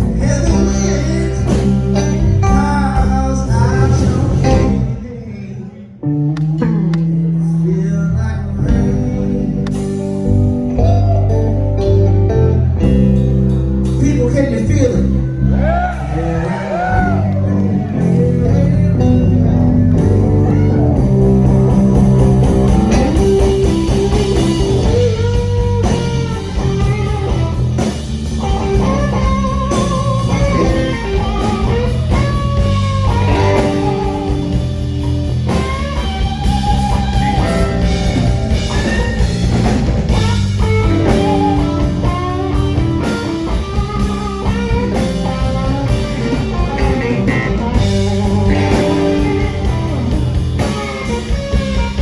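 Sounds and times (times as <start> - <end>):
blues band playing: 0.0 - 5.3, 6.0 - 52.0
electric guitar lead: 0.0 - 52.0.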